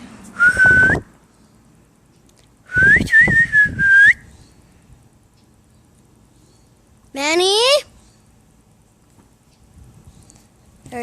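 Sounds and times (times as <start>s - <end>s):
person whistling: 0.4s - 1.0s, 2.7s - 4.3s.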